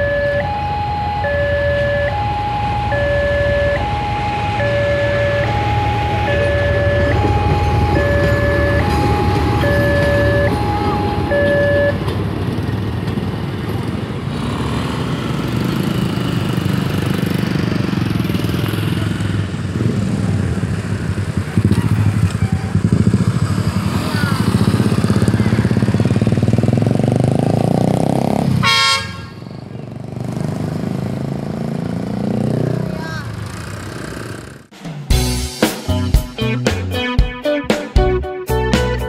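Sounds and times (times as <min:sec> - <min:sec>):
motorcycle engines running: 0:00.0 - 0:34.7
train rumbling: 0:02.6 - 0:27.3
loud horn toot: 0:28.6 - 0:29.5.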